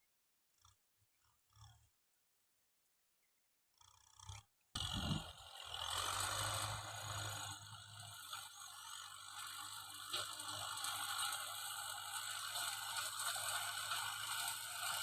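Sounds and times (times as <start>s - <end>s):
tractor diesel engine running: 4.8s - 15.0s.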